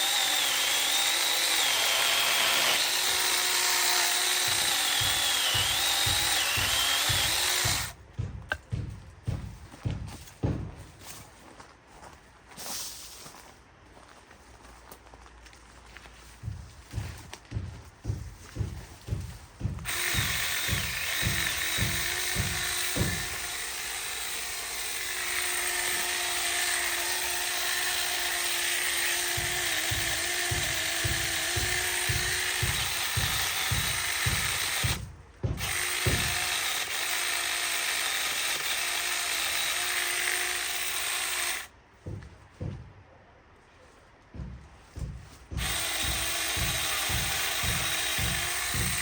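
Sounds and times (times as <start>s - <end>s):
chainsaw cutting wood: 0.0s - 8.8s, 18.0s - 42.2s, 45.0s - 49.0s
thumping background music: 2.6s - 11.0s, 16.5s - 23.6s, 28.7s - 36.9s, 44.4s - 49.0s.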